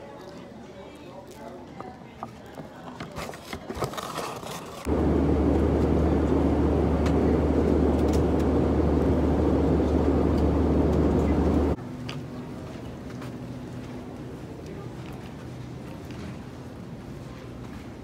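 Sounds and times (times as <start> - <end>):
airliner cabin drone: 4.9 - 13.0.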